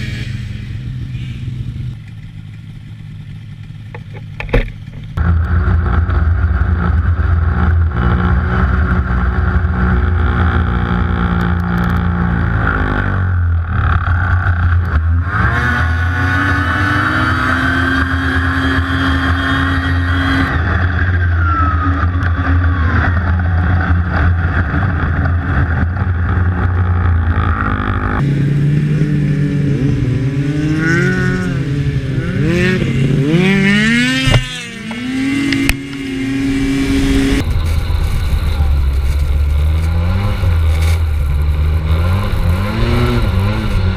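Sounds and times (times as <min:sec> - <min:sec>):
snowmobile engine: 0:00.0 - 0:43.9.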